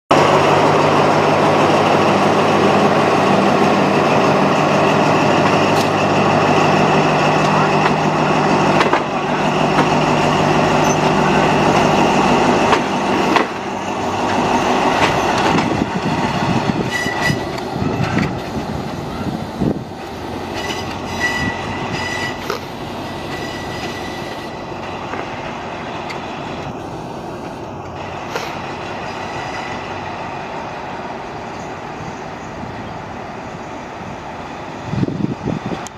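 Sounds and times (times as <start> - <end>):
locomotive engine running: 0.1 - 35.9
train wheels clicking on rails: 0.1 - 35.9
high wheel squeals: 9.2 - 12.4, 16.7 - 18.1, 20.4 - 24.6, 29.0 - 30.0.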